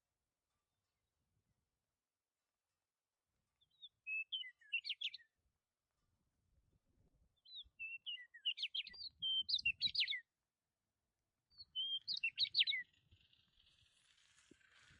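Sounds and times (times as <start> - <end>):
songbird chirps and trills: 2.4 - 10.6, 11.3 - 14.8.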